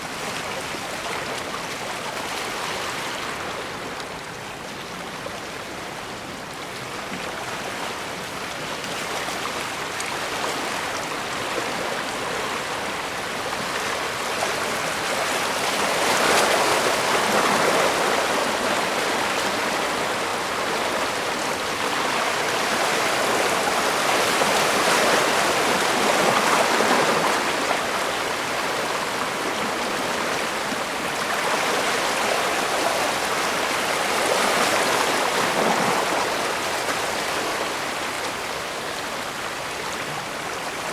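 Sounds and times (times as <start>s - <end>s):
waves washing against shore: 8.8s - 40.9s.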